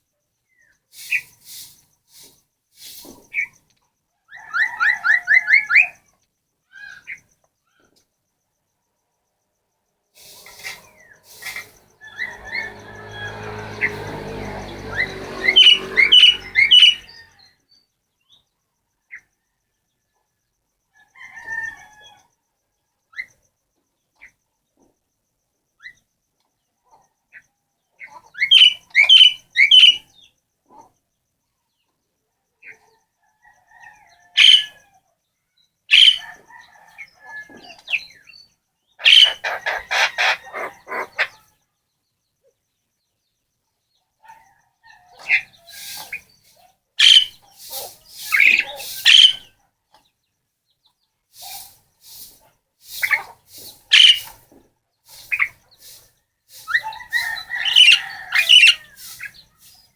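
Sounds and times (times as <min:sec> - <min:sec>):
harsh rapid bird chatter: 0:00.9 - 0:03.6, 0:10.2 - 0:17.3, 0:28.1 - 0:30.0, 0:35.9 - 0:36.4, 0:39.0 - 0:41.5, 0:45.2 - 0:49.5, 0:51.4 - 0:59.9
pet bird calling: 0:15.4 - 0:17.2, 0:39.0 - 0:41.4, 0:47.0 - 0:49.5, 0:52.9 - 0:54.4, 0:56.6 - 0:59.4.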